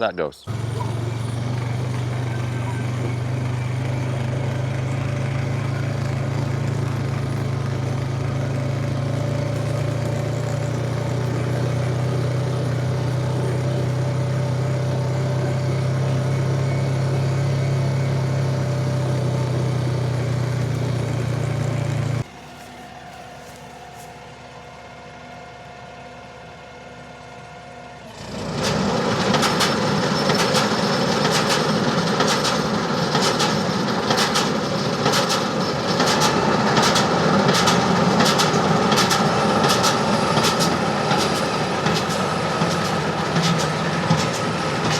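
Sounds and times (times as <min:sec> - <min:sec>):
tractor engine droning: 0:00.0 - 0:44.9.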